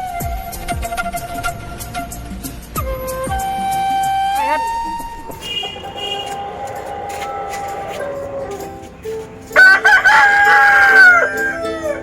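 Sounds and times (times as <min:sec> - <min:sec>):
background music: 0:00.0 - 0:12.0
rooster crowing: 0:05.7 - 0:08.7, 0:09.6 - 0:12.0.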